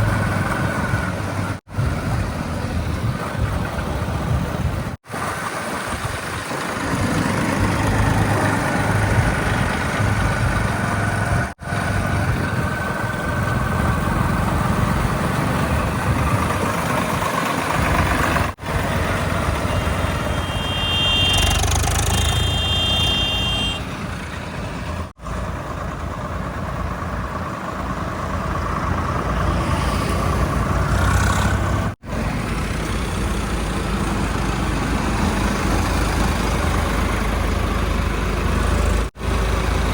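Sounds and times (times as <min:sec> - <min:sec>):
diesel machinery engines running: 0:00.0 - 0:39.9
high two-tone signal: 0:20.2 - 0:23.8.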